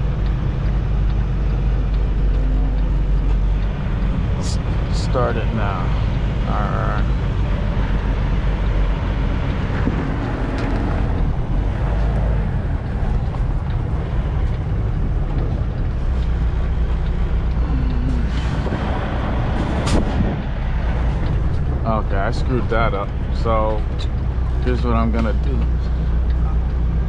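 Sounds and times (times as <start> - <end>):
truck diesel engine rumbling: 0.0 - 27.0
sharp click: 19.7 - 20.3.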